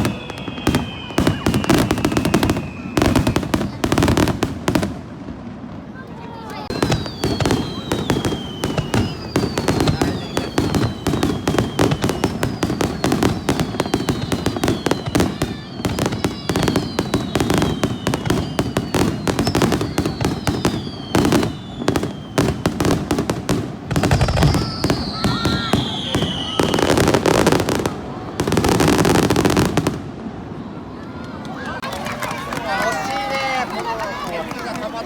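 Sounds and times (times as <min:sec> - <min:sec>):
falling firework whistles: 0:00.0 - 0:04.9, 0:06.6 - 0:30.0
fireworks bangs and crackling: 0:00.0 - 0:35.0.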